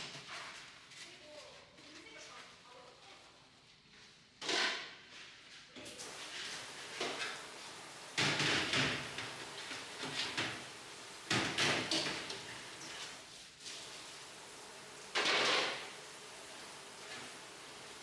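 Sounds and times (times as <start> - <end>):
cookware and trays clattering: 5.9 - 18.0.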